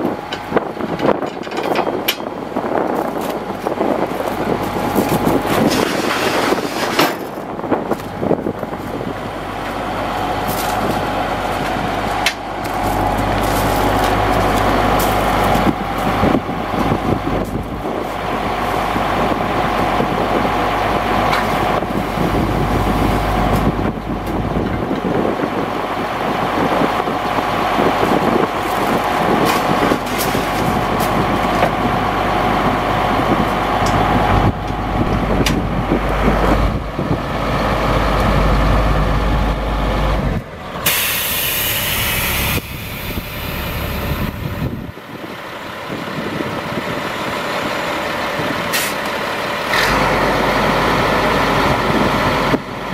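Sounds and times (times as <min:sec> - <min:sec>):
truck engine running: 0:00.0 - 0:52.9
air release hiss: 0:40.8 - 0:43.3.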